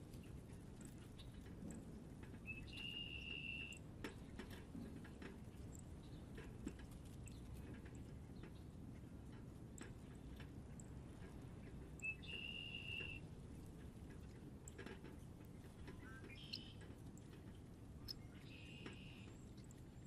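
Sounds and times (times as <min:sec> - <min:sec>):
low background rumble: 0:00.0 - 0:20.0
birds clicking and tapping: 0:00.1 - 0:20.0
high bird chirps: 0:12.0 - 0:13.2, 0:16.0 - 0:16.8.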